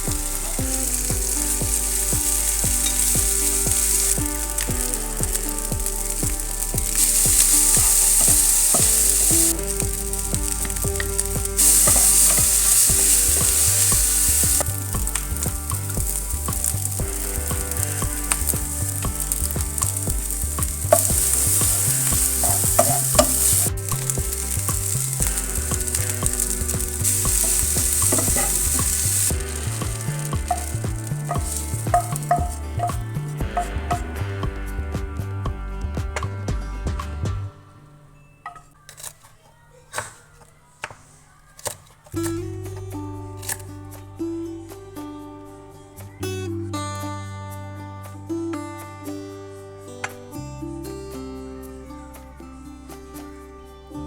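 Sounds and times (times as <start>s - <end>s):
food sizzling in a pan: 0.0s - 34.1s
stirring in a pan: 0.0s - 34.2s.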